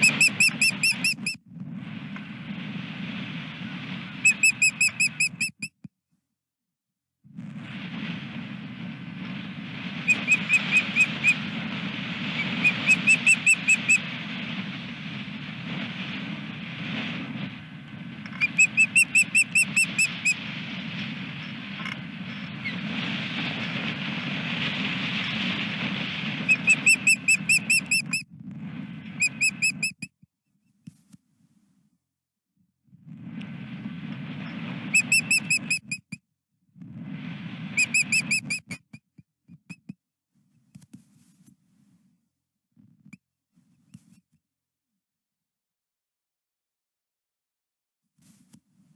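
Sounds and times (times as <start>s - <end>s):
osprey whistled chirps: 0.0s - 1.4s, 4.2s - 5.7s, 9.9s - 14.2s, 18.3s - 20.5s, 26.4s - 28.2s, 29.1s - 30.1s, 34.4s - 36.0s, 37.7s - 38.7s
wind buffeting microphone: 0.0s - 5.4s, 7.3s - 29.9s, 33.0s - 35.9s, 36.8s - 38.6s.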